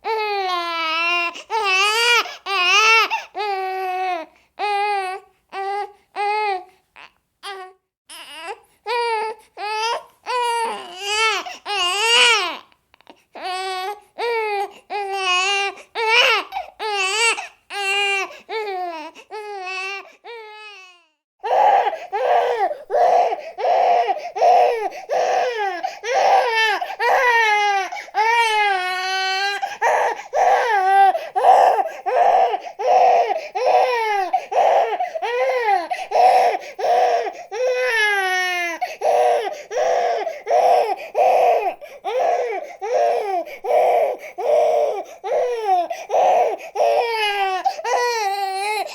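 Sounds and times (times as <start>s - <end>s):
infant crying: 0.0s - 48.9s.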